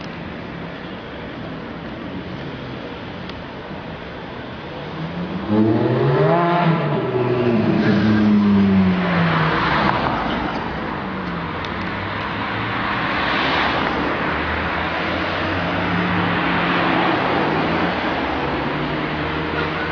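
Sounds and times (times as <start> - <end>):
rushing road noise: 0.0 - 19.9
car engine revving past: 5.2 - 10.2.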